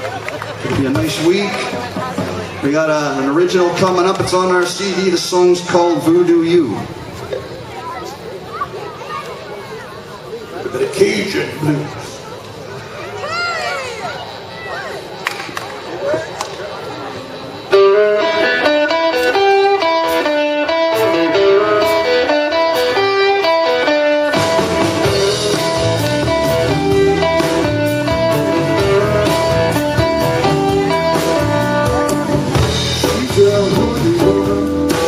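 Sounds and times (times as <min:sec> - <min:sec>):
blues band playing: 0:00.0 - 0:07.6, 0:16.8 - 0:35.0
guitar riff: 0:17.4 - 0:35.0.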